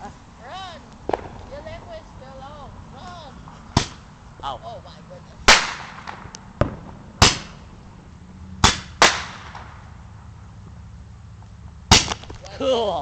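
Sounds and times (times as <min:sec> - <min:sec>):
firework bangs: 0:01.0 - 0:02.6, 0:03.7 - 0:04.1, 0:05.4 - 0:08.0, 0:08.6 - 0:10.0, 0:11.9 - 0:12.4.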